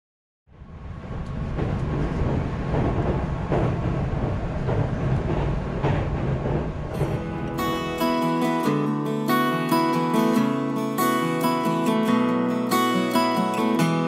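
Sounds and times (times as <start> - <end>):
train rumbling on rails: 0.5 - 8.4
wheels clacking: 1.0 - 8.0.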